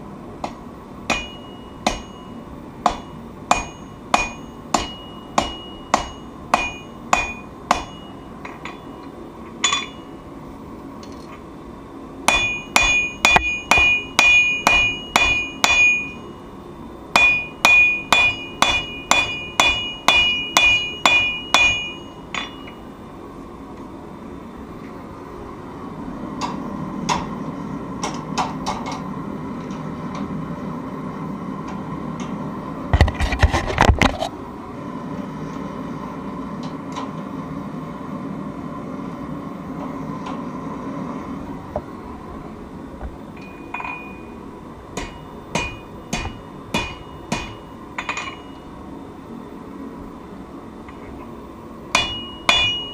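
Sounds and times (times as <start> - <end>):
low machine hum: 0.0 - 52.9
hammer striking steel on anvil: 0.4 - 10.2, 12.3 - 16.4, 17.1 - 22.9, 43.4 - 44.4, 45.0 - 48.7, 51.9 - 52.9
anvil ringing: 1.1 - 10.2, 12.3 - 16.4, 17.2 - 22.9, 43.4 - 44.4, 45.0 - 48.6, 52.0 - 52.9.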